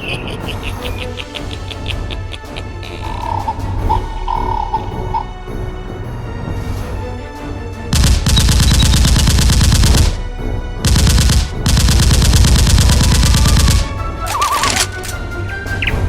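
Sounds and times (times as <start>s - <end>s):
automatic gunfire bursts: 8.0s - 10.2s, 10.9s - 15.1s.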